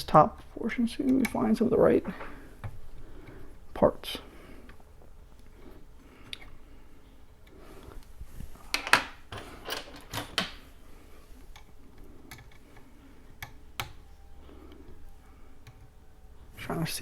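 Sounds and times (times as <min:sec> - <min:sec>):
small tools clicking and clattering: 0:08.7 - 0:10.6.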